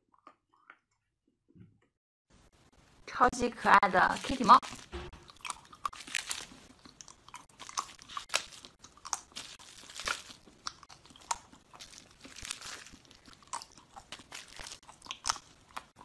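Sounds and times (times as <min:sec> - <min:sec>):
chewing frozen chocolate crunches: 0:04.2 - 0:16.0.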